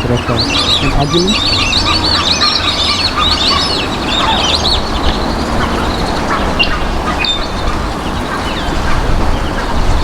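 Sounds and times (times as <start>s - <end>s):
ducks whistling: 0.0s - 10.0s.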